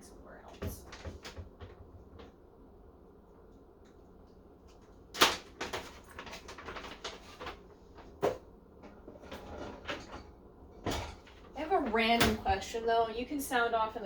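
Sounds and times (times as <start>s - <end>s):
light kitchen clinks and rattles: 5.3s - 12.8s.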